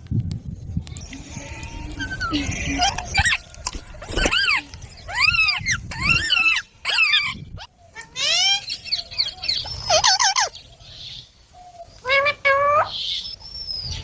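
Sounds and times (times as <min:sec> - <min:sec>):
parakeet calling loudly: 0:04.2 - 0:10.6.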